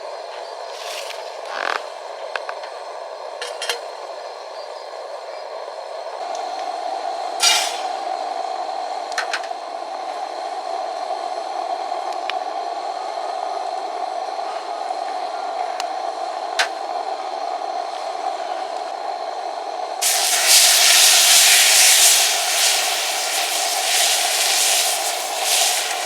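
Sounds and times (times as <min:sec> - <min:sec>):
steady rushing noise: 0:20.0 - 0:26.0.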